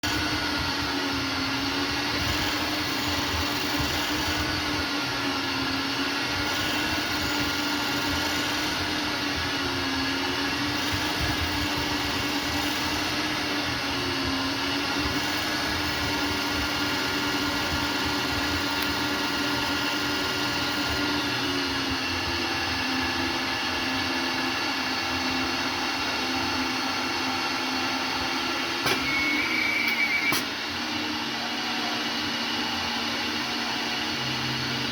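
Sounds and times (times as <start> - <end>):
lathe motor hum and whine: 0.0 - 34.9
click: 18.8 - 19.0
brief high tone: 28.9 - 30.5.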